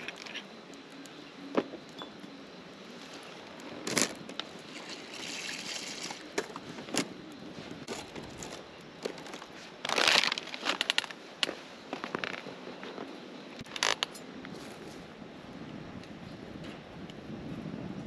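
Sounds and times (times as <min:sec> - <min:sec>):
rustling and crinkling: 0:02.9 - 0:15.1.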